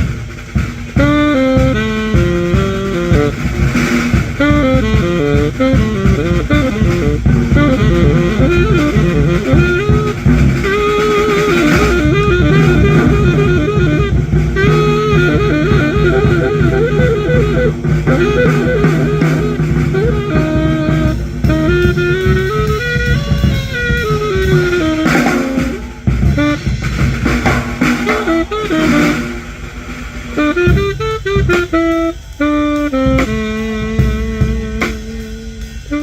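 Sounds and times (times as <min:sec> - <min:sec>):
percussion: 0:00.0 - 0:36.0
saxophone melody: 0:00.0 - 0:36.0
plucked bass notes: 0:04.5 - 0:26.4.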